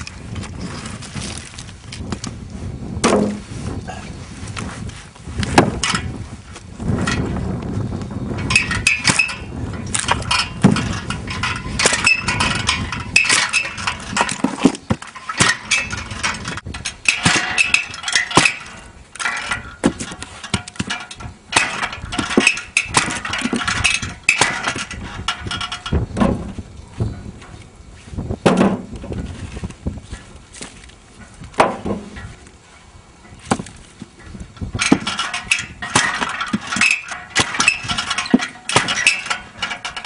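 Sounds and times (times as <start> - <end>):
wood splitting knocks and cracks: 3.0 - 3.4, 5.3 - 7.7, 8.4 - 26.6, 28.4 - 32.5, 33.3 - 40.0.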